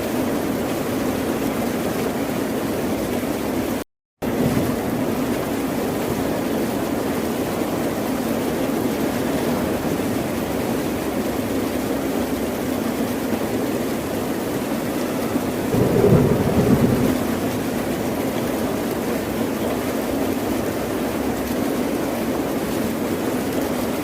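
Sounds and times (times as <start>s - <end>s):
ocean surf rushing: 15.7s - 18.5s.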